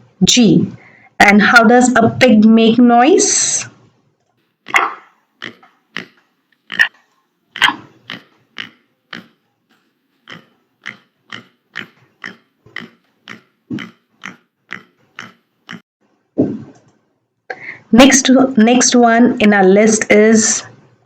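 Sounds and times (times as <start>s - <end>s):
pig grunting: 5.0s - 6.9s, 7.6s - 9.4s, 10.2s - 15.8s.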